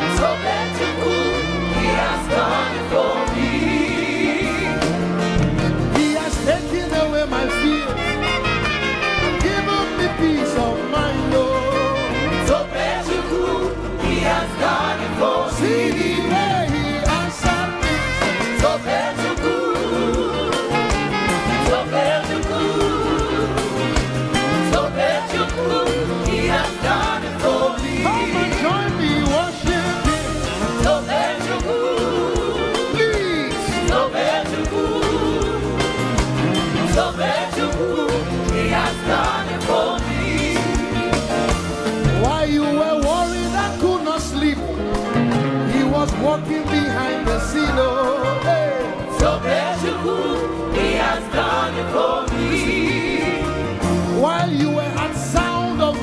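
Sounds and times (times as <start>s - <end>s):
drums keeping a steady beat: 0.0s - 56.0s
gospel band playing: 0.0s - 56.0s.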